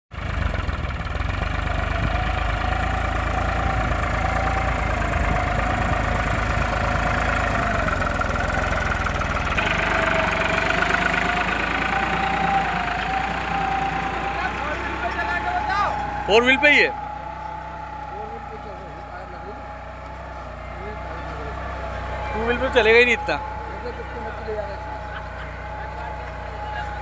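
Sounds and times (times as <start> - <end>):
tractor diesel engine clattering: 0.1 - 27.0.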